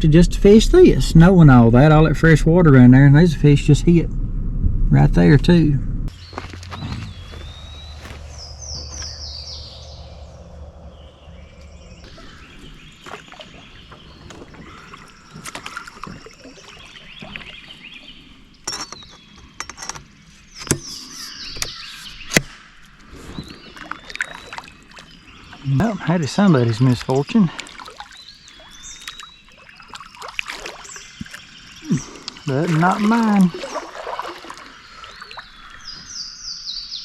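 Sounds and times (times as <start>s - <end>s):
water sounds: 0.0s - 20.2s, 22.7s - 36.4s
bird singing: 6.1s - 37.0s
kayak paddle strokes: 6.2s - 10.4s, 11.6s - 22.0s, 26.8s - 36.2s.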